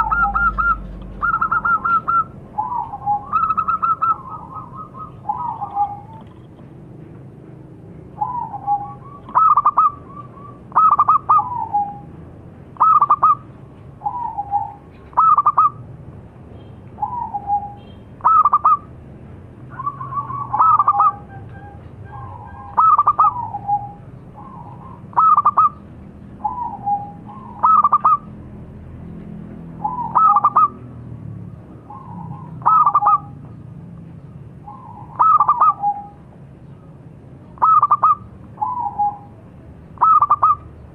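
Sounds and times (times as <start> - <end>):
dove cooing: 0.0 - 6.4, 8.2 - 12.1, 12.8 - 13.4, 14.0 - 15.8, 17.0 - 18.8, 19.7 - 28.3, 29.8 - 30.8, 31.9 - 33.4, 34.6 - 36.2, 37.6 - 39.4, 40.0 - 40.8.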